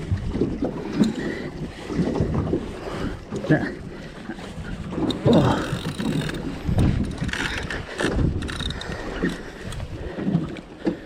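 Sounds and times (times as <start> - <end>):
wind buffeting microphone: 0.0 - 11.0
fishing reel winding and clicking: 5.0 - 10.0.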